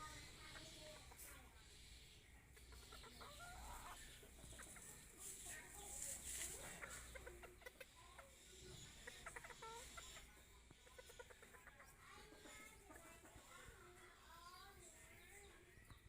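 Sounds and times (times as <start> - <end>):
chickens clucking softly: 0.0 - 16.0.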